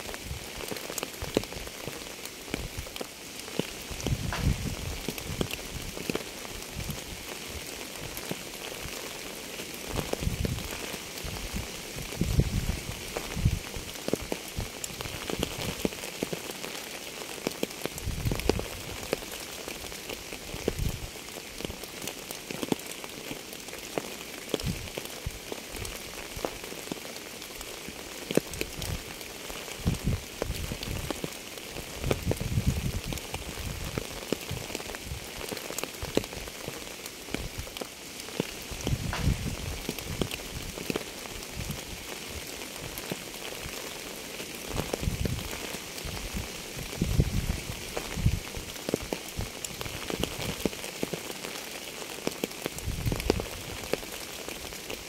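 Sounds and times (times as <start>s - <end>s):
steady rain falling: 0.0s - 55.0s
raindrops ticking: 0.1s - 55.0s.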